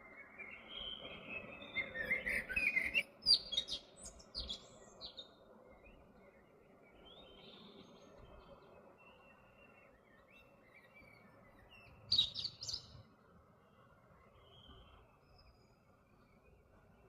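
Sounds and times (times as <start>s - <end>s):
low outdoor hiss: 0.0s - 17.0s
small bird chirping: 10.4s - 13.0s.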